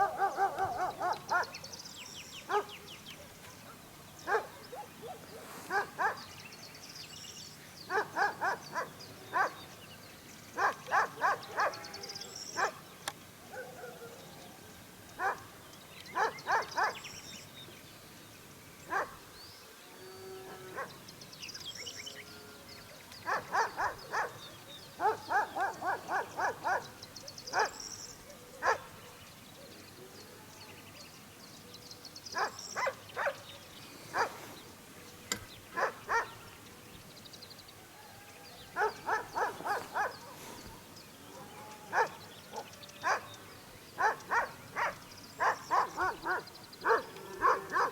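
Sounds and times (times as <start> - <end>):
dog barking: 0.0 - 1.6, 2.5 - 2.8, 4.3 - 6.3, 7.9 - 9.6, 10.6 - 11.8, 12.6 - 12.8, 13.5 - 14.2, 15.2 - 15.4, 16.2 - 17.0, 18.9 - 19.2, 20.7 - 21.0, 23.2 - 24.4, 25.0 - 27.8, 28.6 - 29.0, 32.4 - 33.4, 34.1 - 34.4, 35.8 - 36.4, 38.8 - 40.7, 41.3 - 43.3, 44.0 - 47.9
small birds chirping: 0.0 - 47.9.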